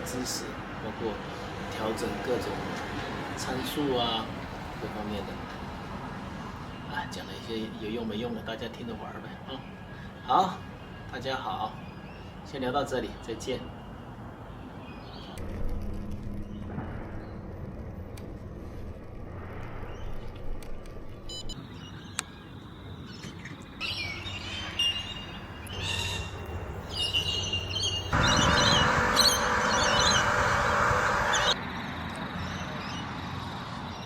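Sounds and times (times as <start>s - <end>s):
birds calling and chirping: 6.3s - 15.4s, 21.6s - 34.0s
dense bird chatter: 6.6s - 15.4s, 21.8s - 31.6s.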